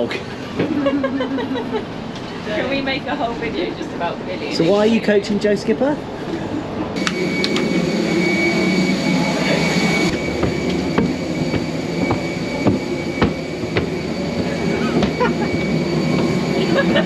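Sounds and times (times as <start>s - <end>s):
thin high whine: 7.0s - 17.0s.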